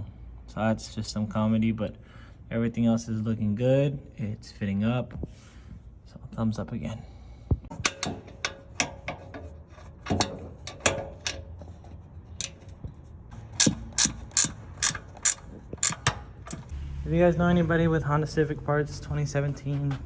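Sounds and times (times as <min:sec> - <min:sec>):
ratchet wrench clicking: 0:13.6 - 0:16.7.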